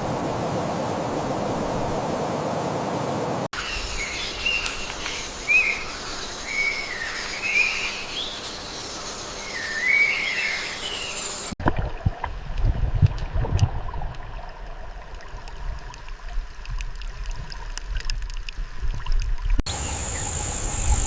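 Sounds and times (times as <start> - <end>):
low knocks and splashes: 11.6 - 19.6
steady high hiss: 19.7 - 21.0.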